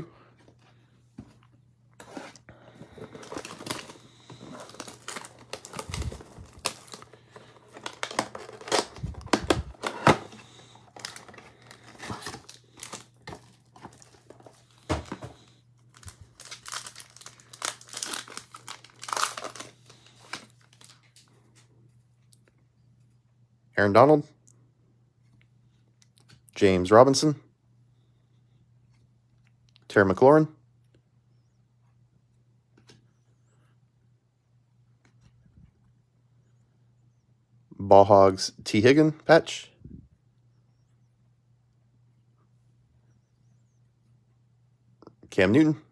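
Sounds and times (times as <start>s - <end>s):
plastic wrapping tearing and crinkling: 2.9s - 21.2s.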